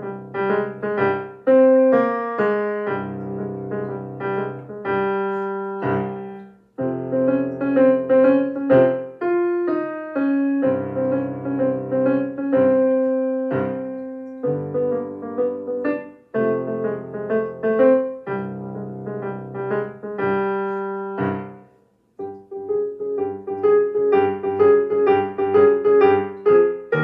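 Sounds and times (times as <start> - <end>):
jazzy solo piano: 0.0 - 27.0.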